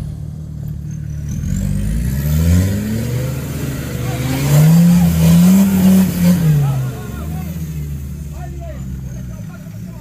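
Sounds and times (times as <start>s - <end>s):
vehicle engine revving: 0.0s - 10.0s.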